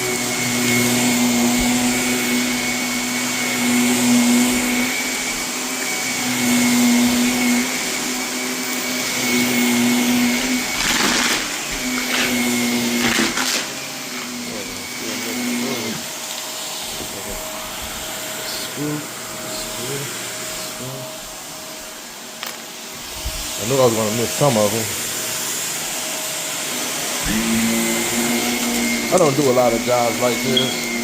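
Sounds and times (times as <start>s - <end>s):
vacuum cleaner on carpet: 0.0s - 31.0s.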